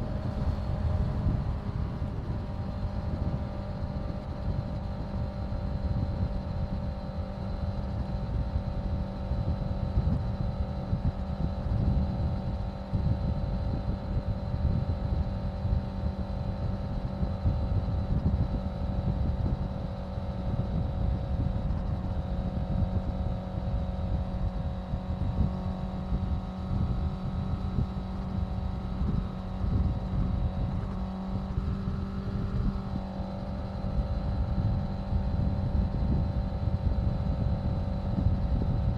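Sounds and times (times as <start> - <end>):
wind rumbling on microphone: 0.0 - 38.9
motorcycle engine cruising: 24.0 - 38.9.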